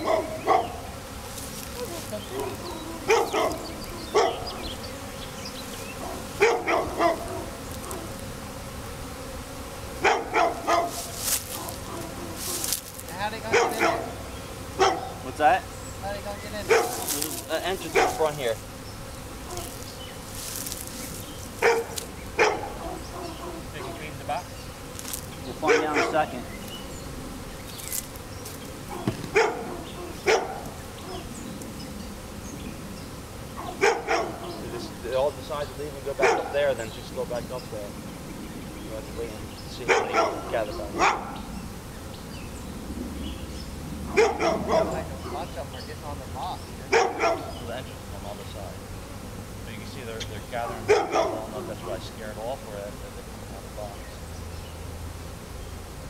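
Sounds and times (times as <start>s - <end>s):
dog barking: 0.0s - 0.8s, 1.8s - 4.6s, 6.0s - 8.2s, 10.0s - 12.7s, 13.4s - 14.2s, 14.8s - 15.2s, 16.7s - 17.1s, 17.8s - 18.4s, 19.5s - 19.8s, 21.6s - 24.1s, 25.6s - 26.4s, 28.9s - 31.2s, 33.6s - 35.0s, 36.1s - 36.7s, 39.8s - 41.5s, 44.1s - 45.6s, 46.9s - 47.7s, 50.6s - 52.0s
honey bee swarm buzzing: 0.0s - 56.0s.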